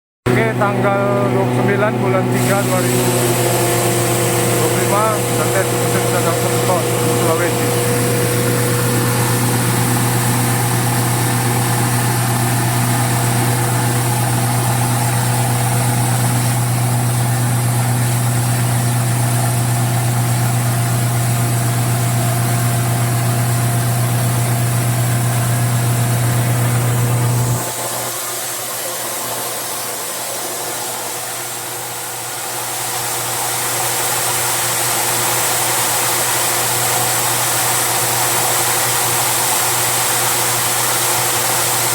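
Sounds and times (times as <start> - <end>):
crushing machine humming: 0.3 - 41.9
machine whirring: 0.3 - 41.9.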